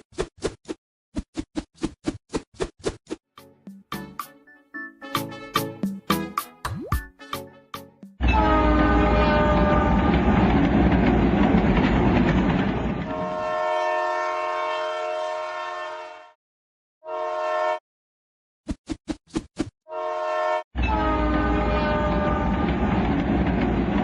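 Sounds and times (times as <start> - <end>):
multi-note train horn: 5.0 - 5.9, 7.2 - 10.2, 13.0 - 16.4, 17.0 - 17.8, 19.9 - 22.8
train rumbling past: 8.3 - 13.7, 20.9 - 24.0.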